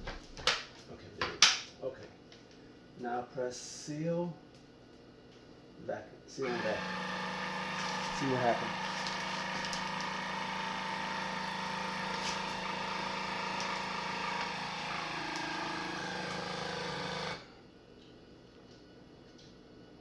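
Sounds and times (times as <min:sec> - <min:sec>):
vacuum sealer pump running: 0:06.4 - 0:17.6.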